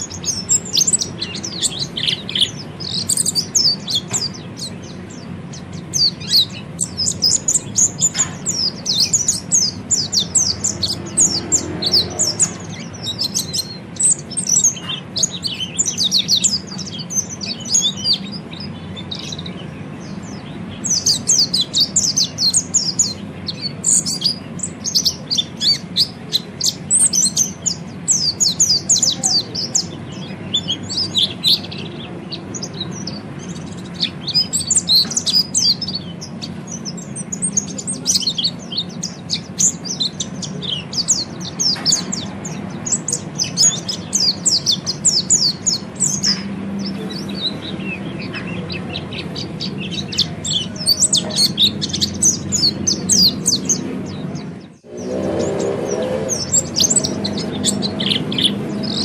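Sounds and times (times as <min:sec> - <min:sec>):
thrush twittering: 0:54.7 - 0:59.0.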